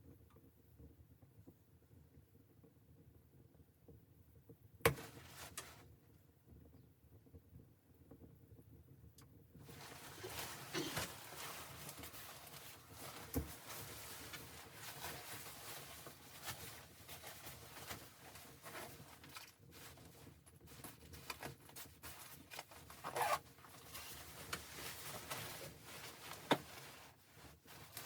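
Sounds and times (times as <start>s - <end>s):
rustling and scraping handling noise: 4.9s - 6.0s, 9.6s - 28.0s.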